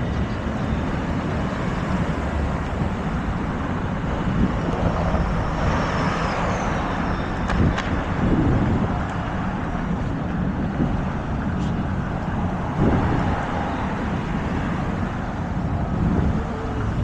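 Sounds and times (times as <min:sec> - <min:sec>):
traffic noise: 0:00.0 - 0:17.0
faint high squeal: 0:05.0 - 0:07.5.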